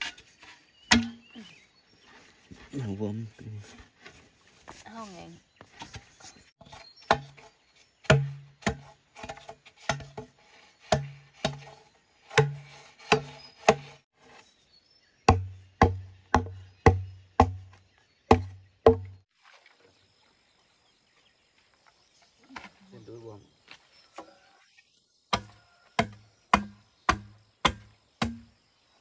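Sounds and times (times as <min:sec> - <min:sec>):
hollow chopping strikes on wood: 0:00.9 - 0:01.3, 0:06.7 - 0:07.4, 0:08.0 - 0:14.0, 0:15.3 - 0:19.2, 0:25.3 - 0:28.5.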